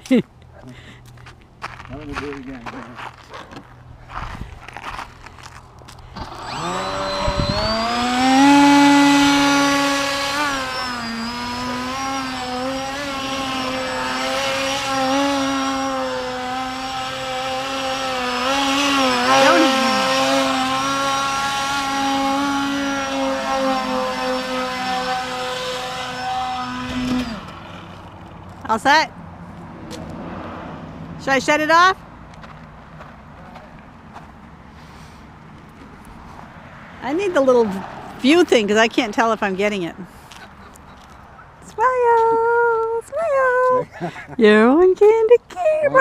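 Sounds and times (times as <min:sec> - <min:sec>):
electric model plane motor whine: 0:06.2 - 0:28.2.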